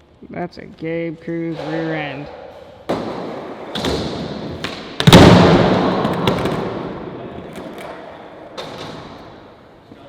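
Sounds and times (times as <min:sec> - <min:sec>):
skateboard clacking on ground: 0:07.3 - 0:09.2.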